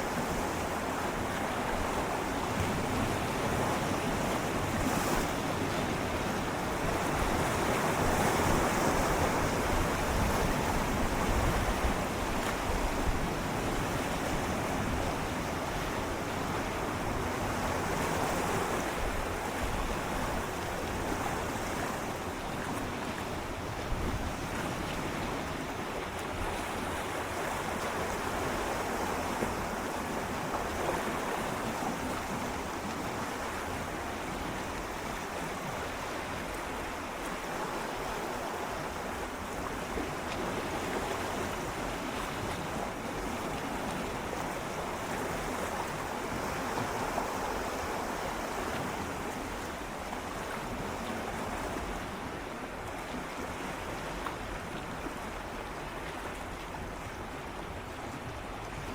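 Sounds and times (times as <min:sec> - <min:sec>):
waves lapping against rocks: 0:00.0 - 0:58.9.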